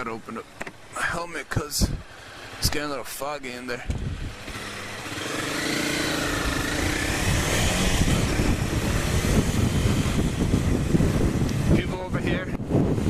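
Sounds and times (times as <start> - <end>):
wind rumble on microphone: 1.5 - 2.8, 3.8 - 4.6, 6.1 - 13.0
motorcycle engine accelerating: 3.9 - 11.9.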